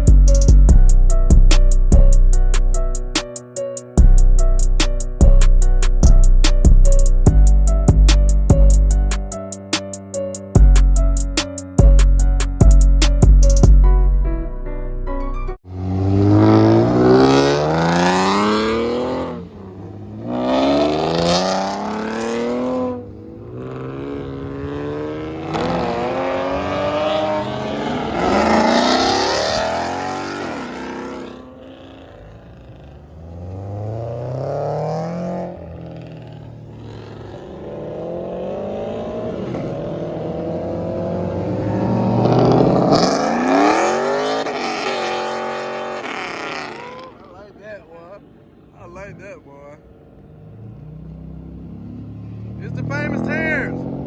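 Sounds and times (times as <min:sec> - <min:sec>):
cars accelerating hard: 0:15.7 - 0:47.4, 0:50.0 - 0:54.0.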